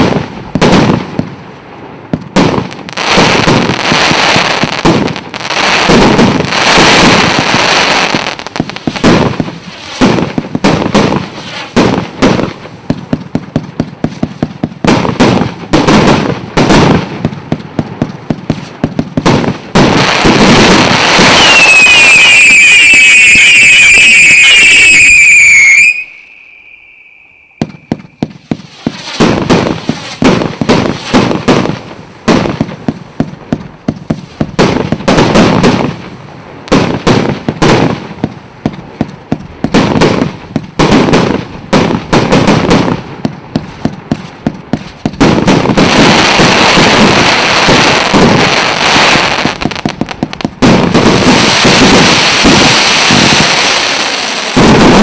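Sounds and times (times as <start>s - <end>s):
fireworks shots banging: 0.0s - 1.4s, 2.1s - 55.0s
dense fireworks crackle: 0.0s - 55.0s
firework whistling: 2.9s - 12.2s, 19.2s - 31.6s, 45.5s - 55.0s.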